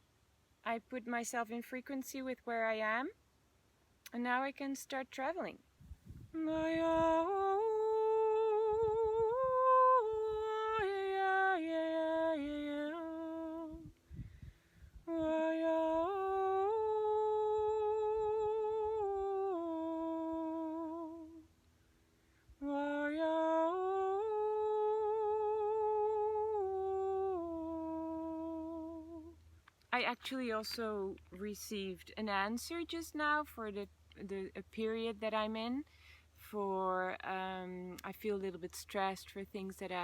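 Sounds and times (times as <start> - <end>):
woman humming a melody: 6.3 - 14.0, 15.0 - 21.5, 22.6 - 29.4.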